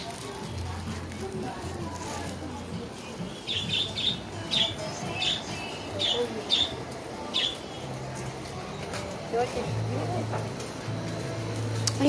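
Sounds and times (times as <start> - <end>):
small bird chirping: 3.2 - 8.0.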